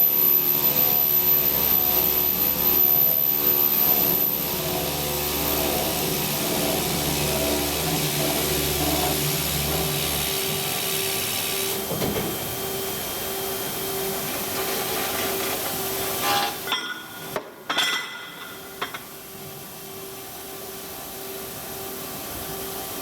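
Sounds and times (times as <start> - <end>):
circular saw machine running: 0.0 - 16.7.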